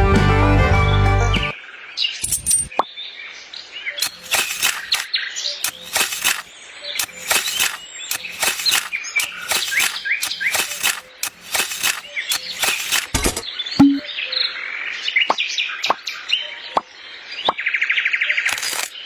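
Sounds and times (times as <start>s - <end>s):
birds chirping: 1.0s - 19.0s
sharp clicks and taps: 5.6s - 14.0s.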